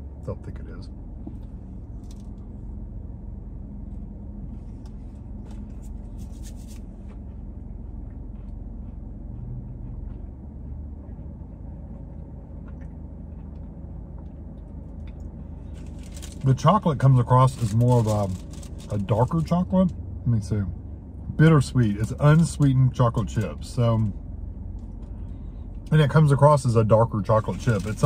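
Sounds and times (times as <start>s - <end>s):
low hum in a car cabin: 0.0s - 28.0s
person chewing a cookie: 11.1s - 15.9s.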